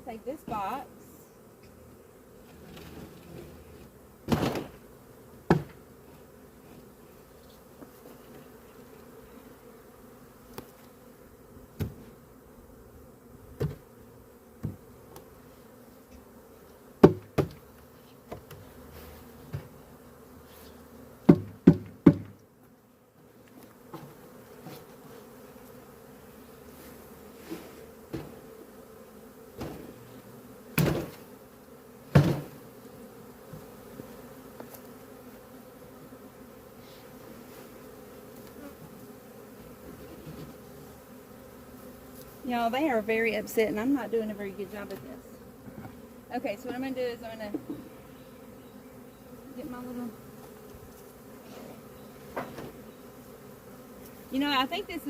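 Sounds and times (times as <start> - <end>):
bees buzzing: 0.0 - 55.0
wooden hive boxes knocking: 5.4 - 5.8, 17.0 - 17.6, 21.2 - 22.4, 28.1 - 28.5, 29.6 - 30.0, 30.8 - 31.2, 32.1 - 32.6.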